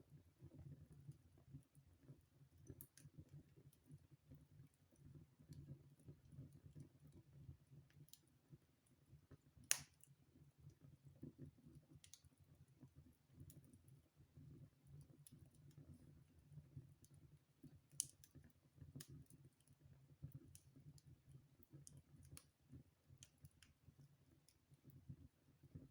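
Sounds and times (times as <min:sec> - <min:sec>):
wood fire crackling: 0:09.4 - 0:10.2, 0:17.0 - 0:19.6.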